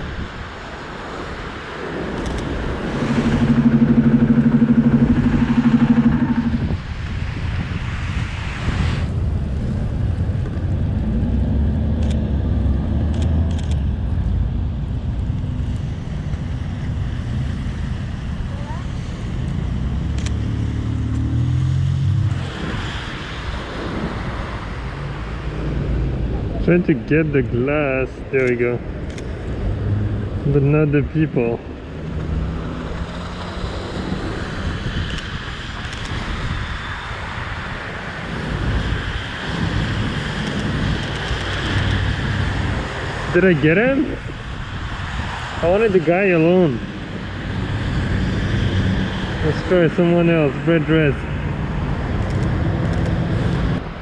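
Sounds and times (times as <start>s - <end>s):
wind on microphone: 0.0s - 26.7s, 31.6s - 49.8s
vehicle engine pulsing hum: 0.8s - 54.0s
single click: 13.1s - 13.8s, 20.1s - 20.4s, 28.4s - 29.3s.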